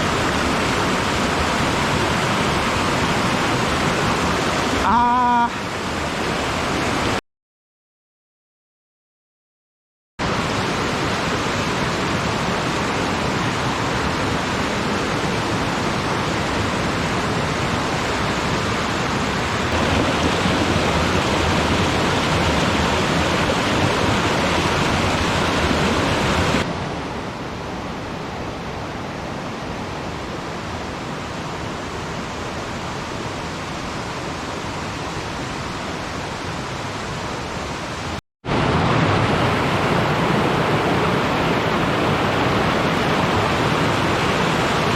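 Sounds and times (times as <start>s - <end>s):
rushing mountain stream: 0.0s - 7.2s, 10.2s - 44.9s.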